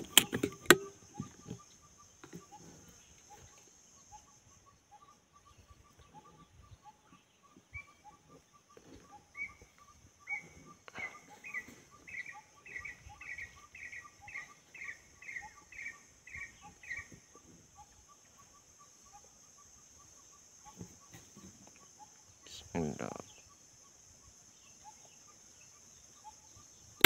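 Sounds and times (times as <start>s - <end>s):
high insect hiss: 9.4s - 27.0s.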